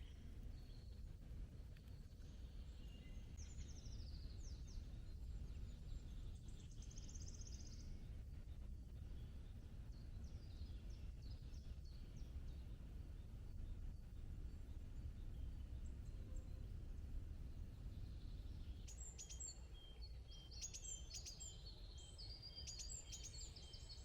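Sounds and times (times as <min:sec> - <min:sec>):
low steady rumble: 0:00.0 - 0:19.2
birds singing: 0:01.7 - 0:24.0.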